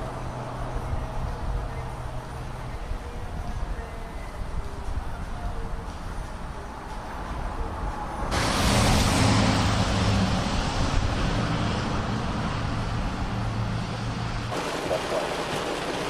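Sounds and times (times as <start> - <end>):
wet tyres hissing on water: 8.3 - 16.0.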